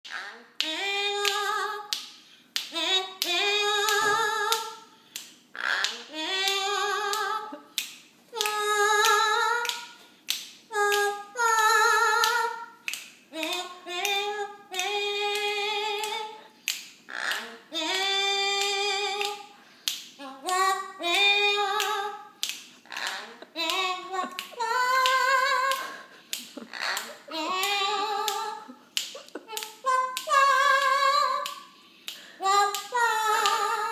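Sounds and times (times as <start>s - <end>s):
parrot imitating human voice: 5.6s - 6.8s, 17.1s - 18.4s, 22.8s - 23.8s, 26.6s - 27.9s.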